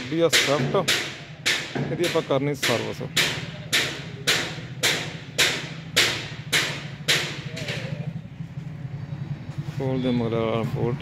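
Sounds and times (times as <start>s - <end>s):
sharp engine knocks: 0.0s - 8.2s
diesel engine idling: 3.0s - 11.0s.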